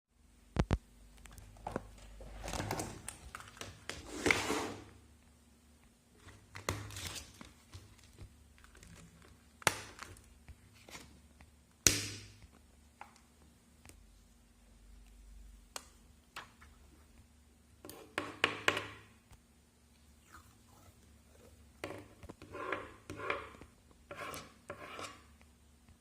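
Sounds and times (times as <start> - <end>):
paper rustling and crinkling: 6.2 - 11.2.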